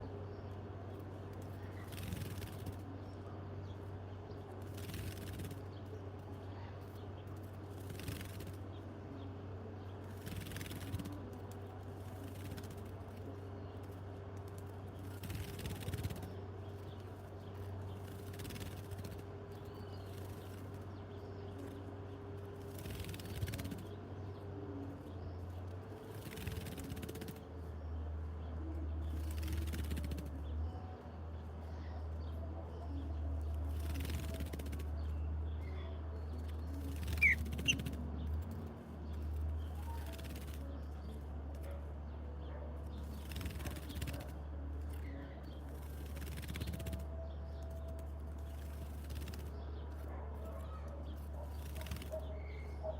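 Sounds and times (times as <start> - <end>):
bird chirp: 0.0 - 52.9
faint rustles: 0.0 - 52.9
steady low hum: 0.0 - 52.9.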